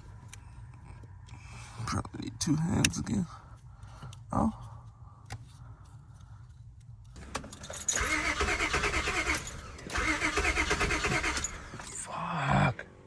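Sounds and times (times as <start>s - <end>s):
car starter cranking: 7.2s - 12.1s.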